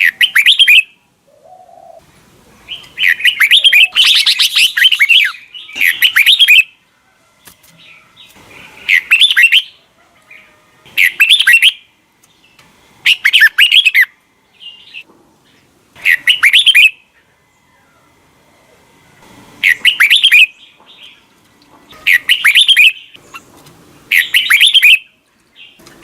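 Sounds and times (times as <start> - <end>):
bird singing whistled phrases: 0.0 - 1.0, 2.7 - 6.7, 8.8 - 9.8, 11.0 - 11.9, 13.1 - 15.0, 16.0 - 17.0, 19.6 - 20.7, 22.1 - 23.2, 24.1 - 25.8.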